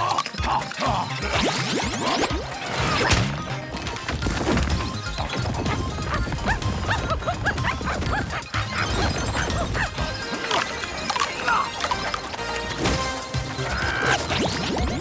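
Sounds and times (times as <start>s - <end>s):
cartoon background music: 0.0s - 15.0s
slapstick crash and whack effects: 1.4s - 5.6s
high chirping squeaks: 4.7s - 15.0s.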